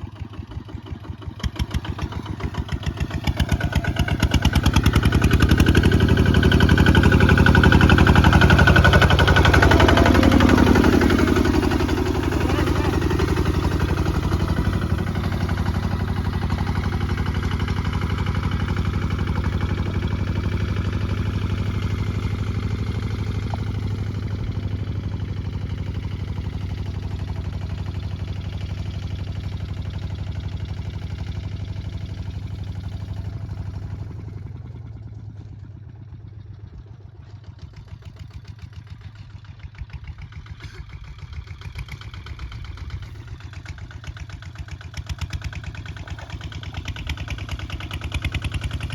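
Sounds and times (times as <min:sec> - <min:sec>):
diesel tractor engine running: 0:00.0 - 0:48.9.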